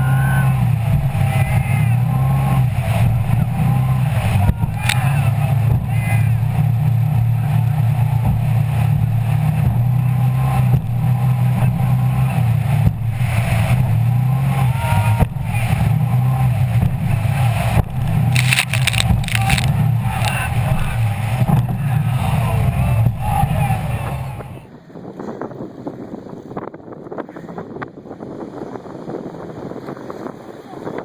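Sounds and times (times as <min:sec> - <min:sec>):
boat engine droning: 0:00.0 - 0:31.0.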